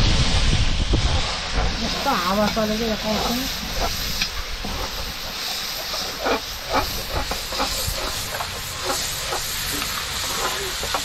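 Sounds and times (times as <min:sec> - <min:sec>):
wind rumbling on microphone: 0:00.0 - 0:05.4.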